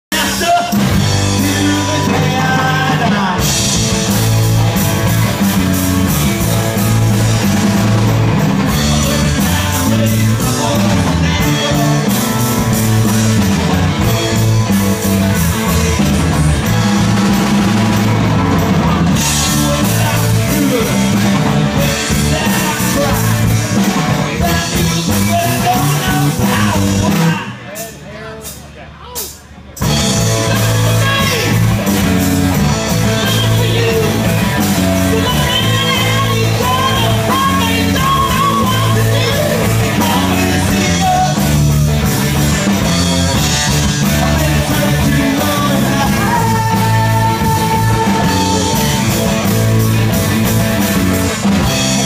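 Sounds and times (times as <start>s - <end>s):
bass guitar: 0.0s - 52.0s
person singing: 0.1s - 3.9s, 8.6s - 18.0s, 19.0s - 27.6s, 32.6s - 49.7s
electric guitar: 0.1s - 27.6s, 29.8s - 52.0s
drum kit: 0.1s - 52.0s.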